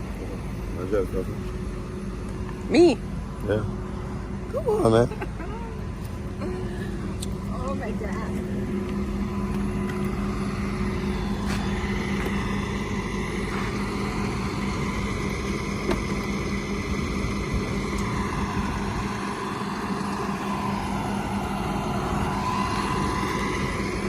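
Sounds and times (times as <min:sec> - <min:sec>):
higher drone: 0:00.0 - 0:24.0
vehicle engine humming: 0:00.0 - 0:24.0.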